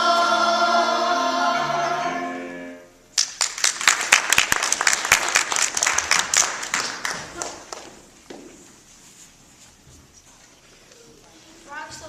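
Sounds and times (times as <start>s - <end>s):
children's choir singing: 0.0s - 3.0s
accompanying music: 0.0s - 3.1s
audience applause: 3.2s - 8.0s.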